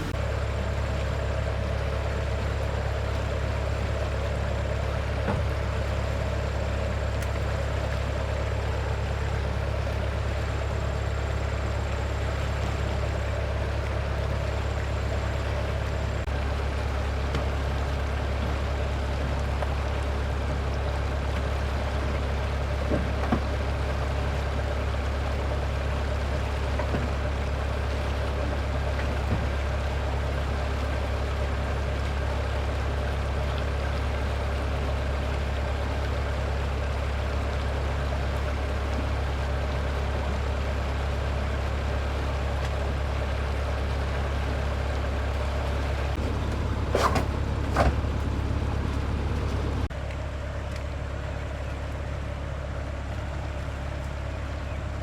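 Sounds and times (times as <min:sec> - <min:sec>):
motor humming: 0:00.0 - 0:21.0.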